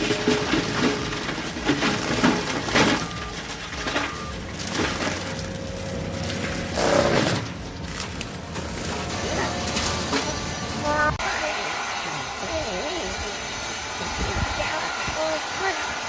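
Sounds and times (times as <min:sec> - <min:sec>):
wood cracking and splintering: 0:00.0 - 0:10.5
heavy machinery noise: 0:00.0 - 0:16.0.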